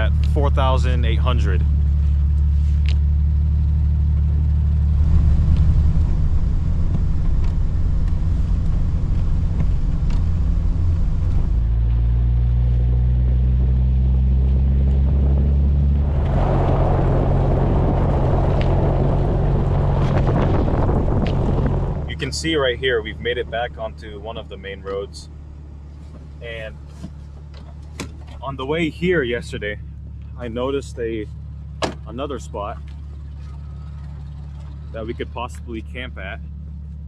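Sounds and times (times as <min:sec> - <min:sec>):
off-road vehicle engine droning: 0:00.0 - 0:37.0
loud rushing noise: 0:15.8 - 0:22.2.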